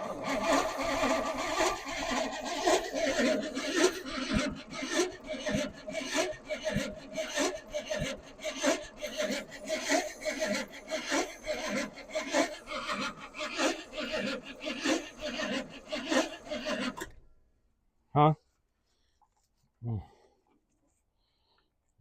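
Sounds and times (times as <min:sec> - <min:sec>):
starter cranking truck engine: 0:00.0 - 0:17.2.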